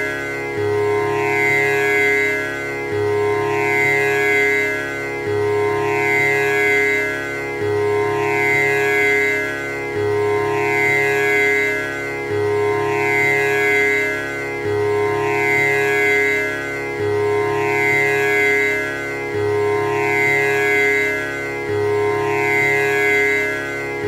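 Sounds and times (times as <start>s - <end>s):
tanpura drone: 0.0s - 24.0s.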